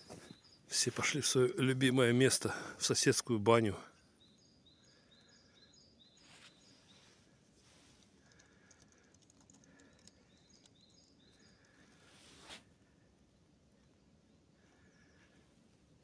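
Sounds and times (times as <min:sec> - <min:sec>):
faint distant bird song: 0:00.0 - 0:16.0
soft rustle: 0:06.2 - 0:08.7, 0:11.6 - 0:13.0.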